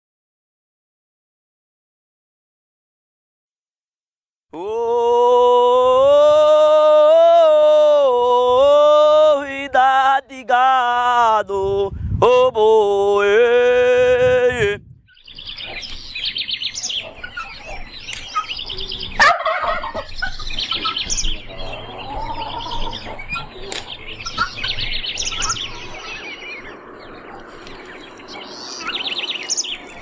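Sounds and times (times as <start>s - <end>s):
man chanting long notes: 4.6s - 14.8s
loud low bird call: 14.6s - 30.0s
birds chirping and calling: 15.0s - 30.0s.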